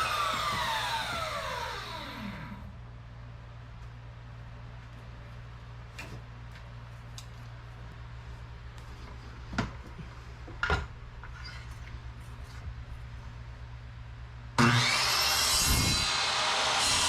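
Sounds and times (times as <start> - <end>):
work knocks and clatters: 0.0 - 1.9
steady low hum: 0.0 - 14.6.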